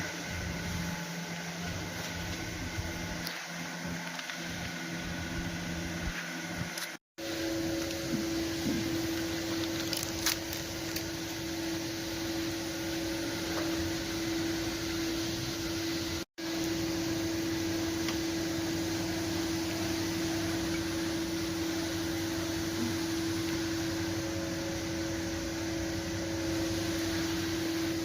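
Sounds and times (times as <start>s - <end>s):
steady mechanical hum: 0.0s - 28.0s
hiss: 8.0s - 28.0s.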